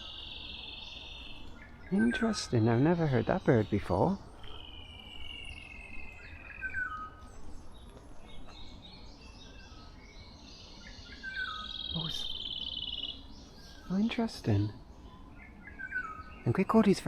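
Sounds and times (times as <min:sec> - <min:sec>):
bird chirps: 0:00.0 - 0:17.0
rapid trilling birdsong: 0:00.0 - 0:17.0.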